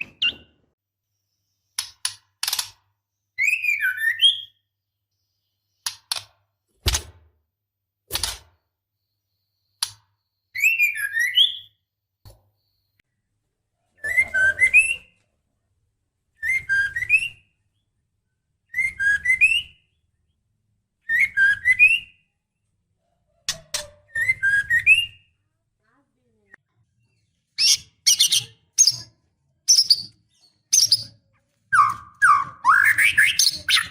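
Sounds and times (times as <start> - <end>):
bird calling whistles and chatter: 31.7 - 33.9.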